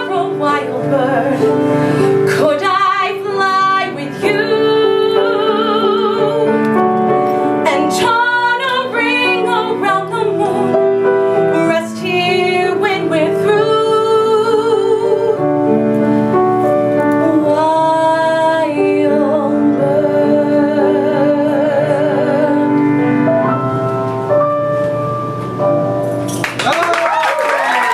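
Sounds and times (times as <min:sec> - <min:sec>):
person singing with vibrato: 0:00.0 - 0:06.7
piano accompaniment: 0:00.0 - 0:27.9.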